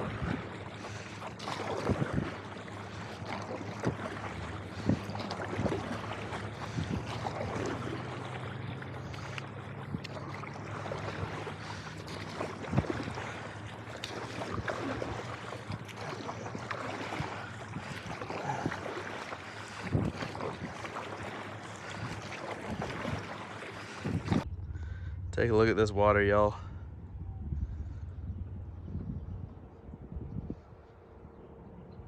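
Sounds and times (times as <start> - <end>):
paddle strokes in water: 0.0 - 24.5
sharp splashes: 0.0 - 26.8
wind on microphone: 1.5 - 8.2, 12.2 - 13.5, 14.1 - 32.0.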